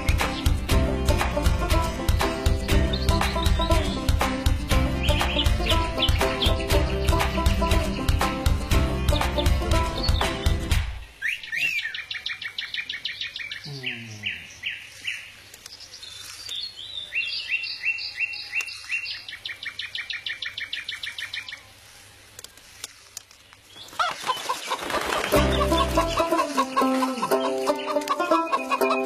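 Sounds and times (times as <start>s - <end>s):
small bird chirping: 11.1s - 29.0s.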